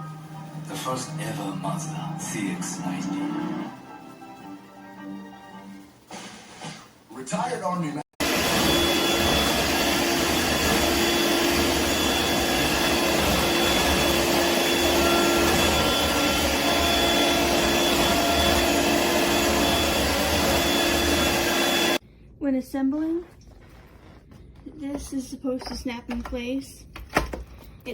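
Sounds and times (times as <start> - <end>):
stick vacuum running: 8.2 - 22.0.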